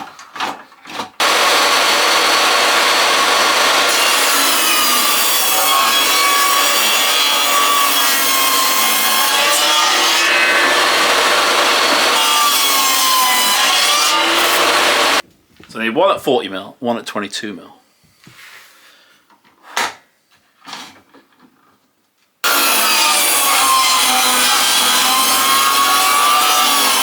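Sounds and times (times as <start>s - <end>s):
table saw ripping wood: 0.6s - 15.2s, 22.4s - 27.0s.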